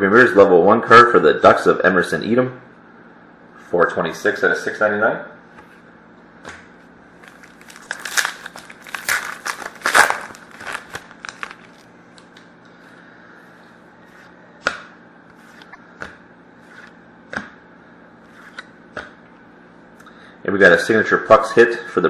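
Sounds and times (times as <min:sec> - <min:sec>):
card pack wrapper crinkling: 0:07.2 - 0:12.3.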